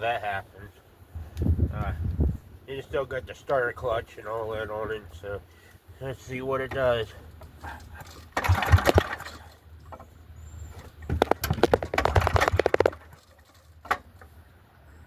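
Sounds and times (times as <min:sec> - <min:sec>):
generator engine pull-started: 0:06.7 - 0:14.4.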